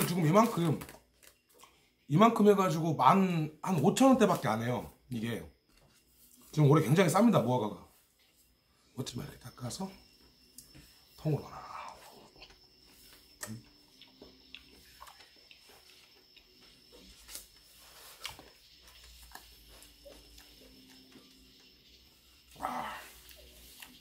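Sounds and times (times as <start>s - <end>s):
man chewing: 11.8s - 21.6s.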